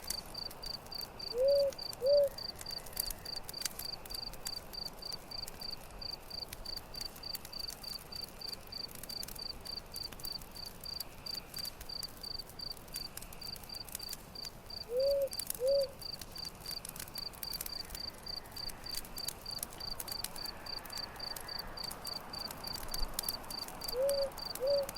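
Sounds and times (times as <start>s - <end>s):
campfire crackling and popping: 0.0s - 24.9s
cricket chirping: 0.0s - 24.9s
bird hooting: 1.3s - 2.4s, 14.9s - 16.0s, 23.9s - 24.9s.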